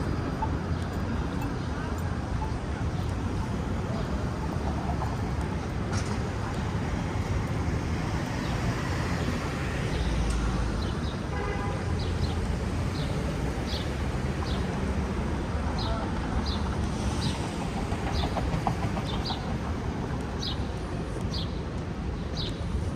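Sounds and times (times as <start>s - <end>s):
street traffic rumble: 0.0s - 22.9s.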